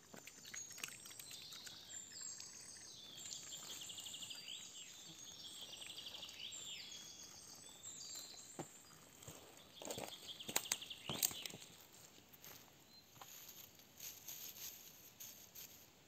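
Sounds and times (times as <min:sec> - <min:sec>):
songbirds singing: 0:00.0 - 0:11.9.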